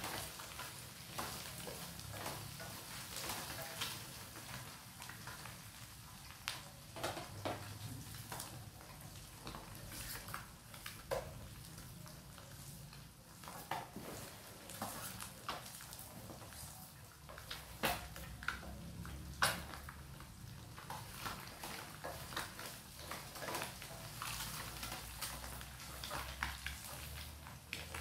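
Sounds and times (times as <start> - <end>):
eggs sizzling in a pan: 0.0 - 28.0.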